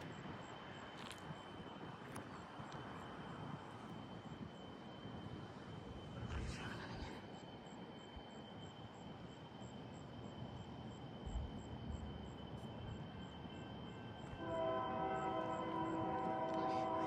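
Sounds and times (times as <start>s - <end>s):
freight train rumble: 0.0s - 17.0s
locomotive air horn: 14.3s - 17.0s.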